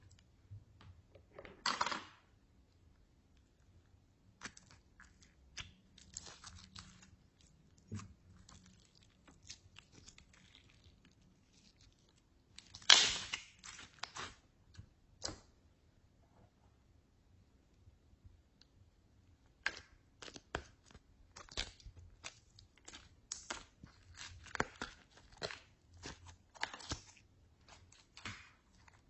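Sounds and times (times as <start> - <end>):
slime squishing: 2.7 - 15.6, 19.3 - 29.0.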